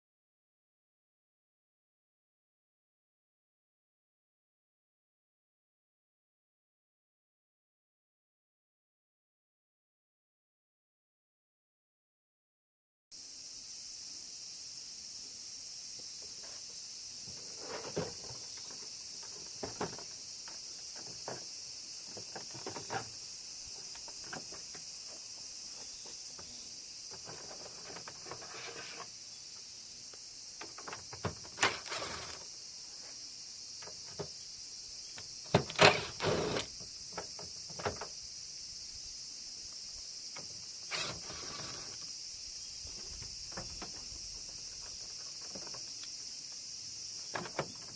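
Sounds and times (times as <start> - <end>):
steady high hiss: 13.2 - 47.9.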